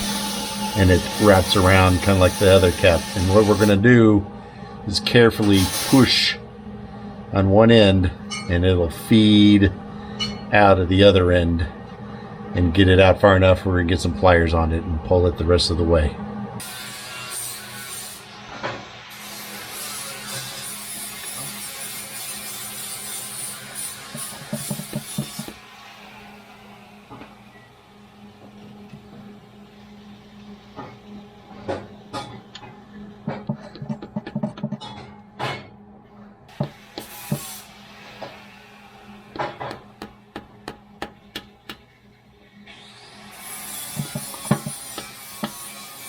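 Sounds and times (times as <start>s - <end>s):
hand scraping and rubbing: 5.4s - 6.2s, 33.4s - 34.8s, 43.8s - 46.0s
hand tool tapping metal: 24.1s - 25.6s, 33.3s - 35.0s, 39.3s - 41.9s, 43.9s - 45.7s
clicks and knocks: 33.3s - 35.6s.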